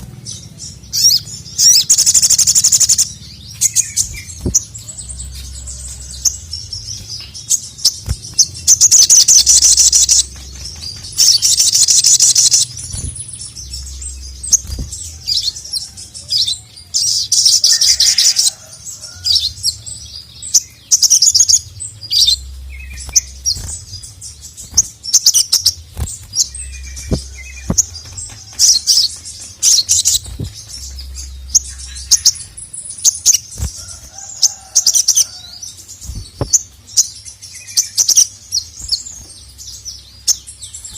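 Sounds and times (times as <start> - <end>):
bird rattling trills: 22.1 - 36.7.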